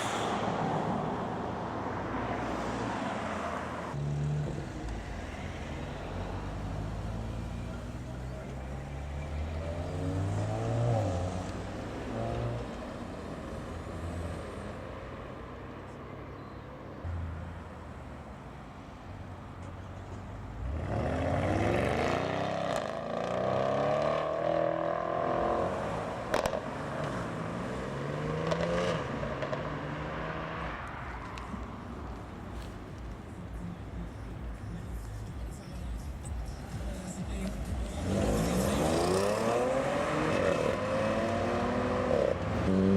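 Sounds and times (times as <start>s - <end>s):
cars driving past: 0.0s - 42.9s
car accelerating: 2.1s - 14.8s, 20.6s - 32.3s, 36.4s - 42.9s.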